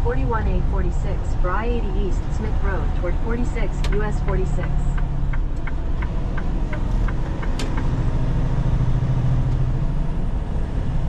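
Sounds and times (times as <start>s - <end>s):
diesel engine drone: 0.0s - 11.0s
road noise: 0.0s - 11.0s
regular clicks: 3.6s - 7.9s.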